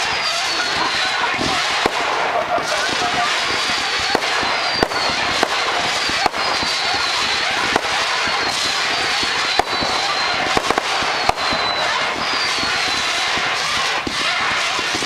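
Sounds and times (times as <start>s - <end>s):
falling firework whistles: 0.0s - 15.0s
fireworks crackling hiss: 0.0s - 15.0s
fireworks popping: 0.0s - 15.0s.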